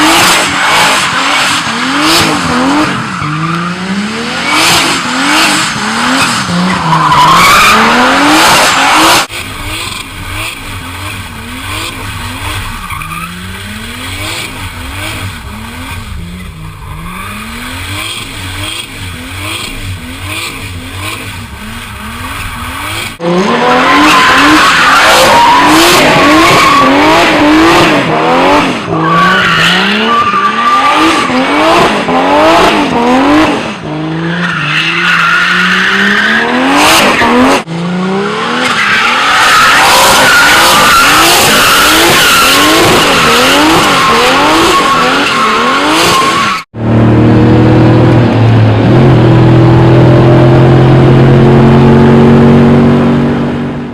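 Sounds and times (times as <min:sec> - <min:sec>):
car engine revving: 0:00.0 - 0:53.9
tyre squeal: 0:38.6 - 0:46.7.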